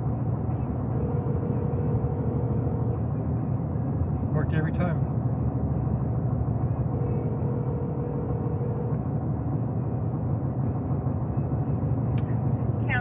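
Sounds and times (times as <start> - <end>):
car road and engine rumble: 0.0 - 13.0
telephone ringback tone: 0.9 - 3.0.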